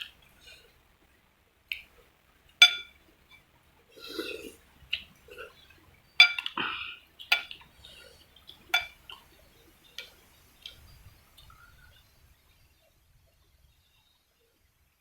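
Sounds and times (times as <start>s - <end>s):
metal utensils clinking on bowl: 2.6s - 2.9s, 6.2s - 6.6s, 7.3s - 7.6s, 8.7s - 9.0s.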